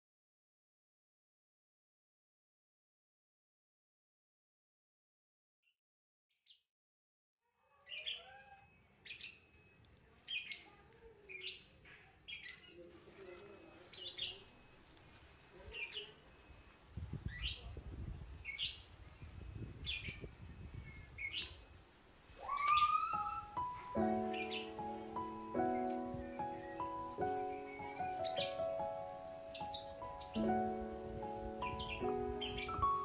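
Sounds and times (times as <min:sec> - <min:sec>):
small bird chirping: 0:07.7 - 0:30.9, 0:31.5 - 0:33.0.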